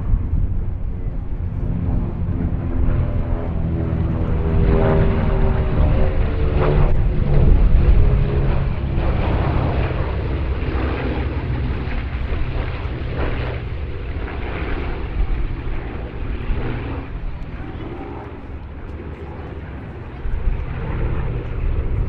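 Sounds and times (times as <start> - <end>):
propeller planes passing: 0.0 - 22.0.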